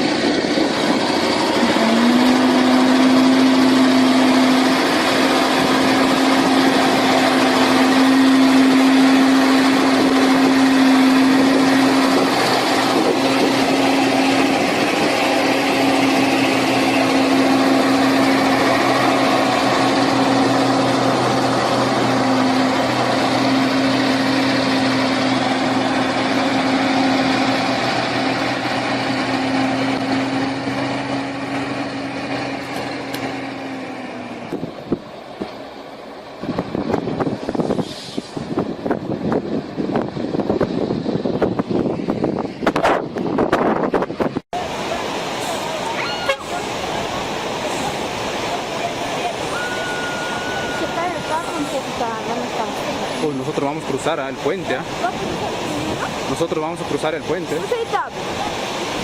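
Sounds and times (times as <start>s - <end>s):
vehicle engine running: 0.0s - 37.7s.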